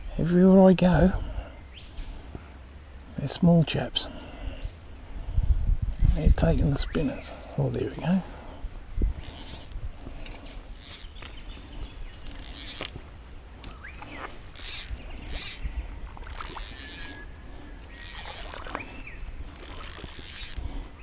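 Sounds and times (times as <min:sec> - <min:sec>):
wind rumble on microphone: 0:04.2 - 0:07.6, 0:08.3 - 0:21.0
high insect buzz: 0:08.6 - 0:21.0.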